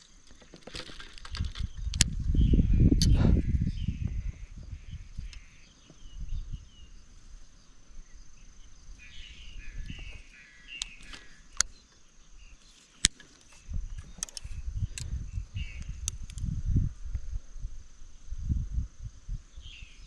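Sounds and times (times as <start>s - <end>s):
sharp clicks: 0.0s - 2.2s, 9.8s - 12.0s, 13.0s - 16.5s
low rumbling wind: 1.1s - 12.6s, 13.4s - 20.0s.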